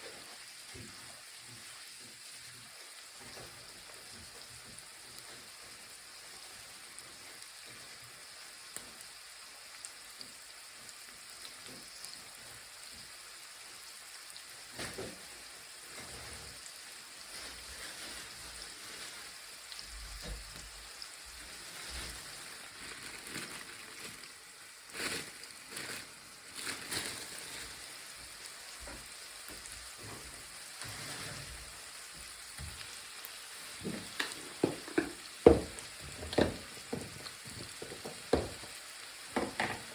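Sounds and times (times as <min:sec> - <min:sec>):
food sizzling in a frying pan: 0:00.0 - 0:39.9
utensil knocking and scraping pan: 0:33.9 - 0:38.6, 0:39.4 - 0:39.9.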